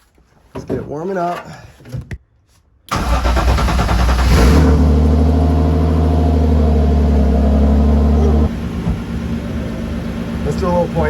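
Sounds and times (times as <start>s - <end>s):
car engine starting and idling: 2.9s - 11.0s.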